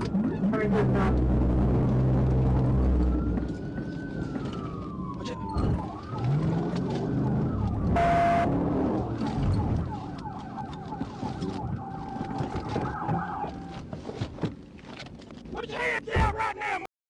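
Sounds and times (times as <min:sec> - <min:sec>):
car engine accelerating: 0:00.0 - 0:04.0, 0:06.0 - 0:10.3
police siren wailing and yelping: 0:00.0 - 0:13.8.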